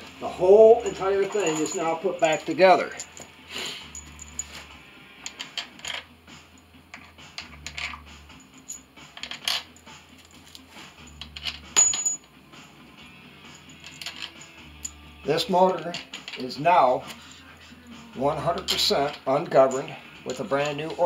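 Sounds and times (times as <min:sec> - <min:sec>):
metal tools clinking: 0:00.7 - 0:06.1, 0:06.9 - 0:12.4, 0:13.5 - 0:15.0, 0:15.7 - 0:17.2, 0:18.5 - 0:21.0.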